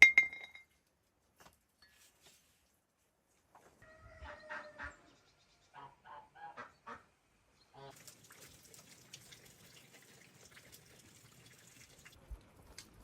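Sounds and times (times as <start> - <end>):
patter of water with ticks: 7.8 - 13.0.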